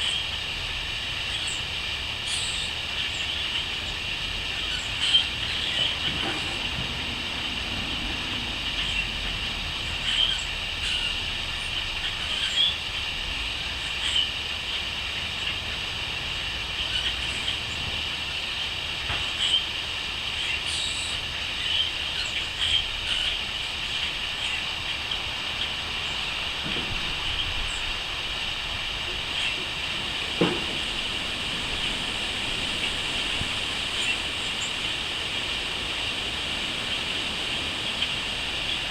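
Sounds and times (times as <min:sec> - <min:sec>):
crickets chirping: 0:23.4 - 0:38.9.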